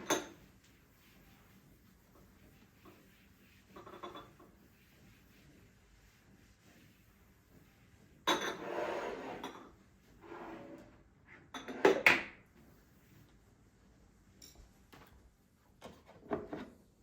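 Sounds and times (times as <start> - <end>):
dishes and cutlery clattering: 0.0 - 0.4, 3.8 - 4.4, 8.3 - 9.8, 11.4 - 12.2.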